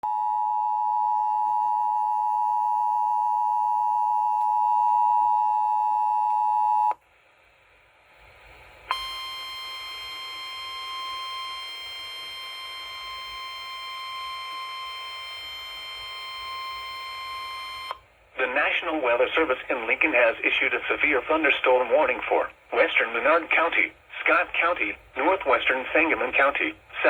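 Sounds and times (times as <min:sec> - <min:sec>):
faint hiss: 0:07.1 - 0:09.0
two-tone alert alarm: 0:08.9 - 0:18.0.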